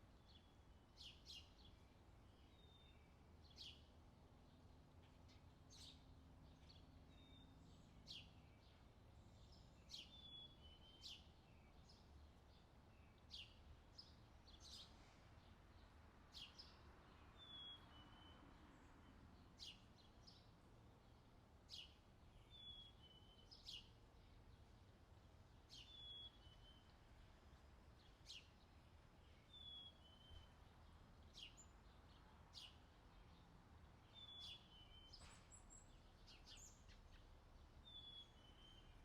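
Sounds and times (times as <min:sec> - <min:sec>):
bird chirps: 0:25.7 - 0:27.0, 0:34.0 - 0:39.0.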